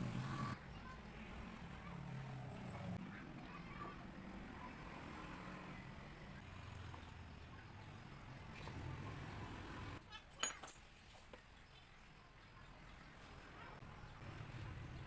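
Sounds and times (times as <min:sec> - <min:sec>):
faint indistinct voices: 0:00.0 - 0:09.0, 0:12.1 - 0:14.8.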